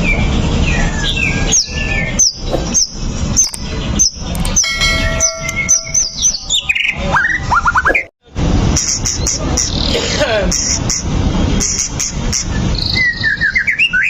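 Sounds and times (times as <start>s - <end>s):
bird singing: 0.7s - 7.0s.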